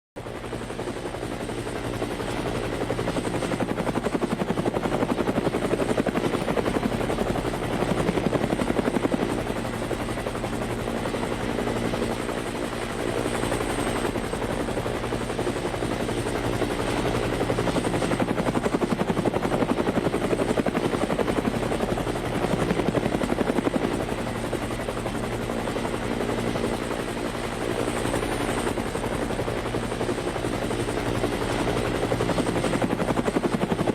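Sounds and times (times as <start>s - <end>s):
helicopter rotor beating: 0.2s - 33.9s.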